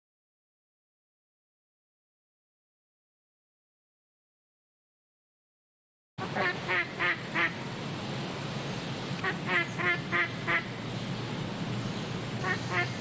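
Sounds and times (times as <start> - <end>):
duck quacking: 6.2 - 7.6, 9.2 - 10.7, 12.4 - 13.0
low background hum: 6.2 - 13.0.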